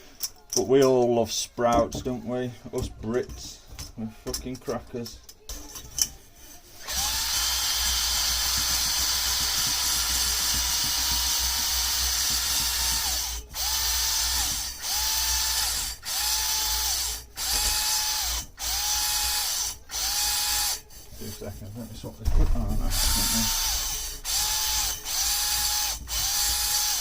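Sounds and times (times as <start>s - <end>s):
cordless drill motor whine: 6.8s - 8.4s, 10.7s - 20.8s, 22.9s - 27.0s.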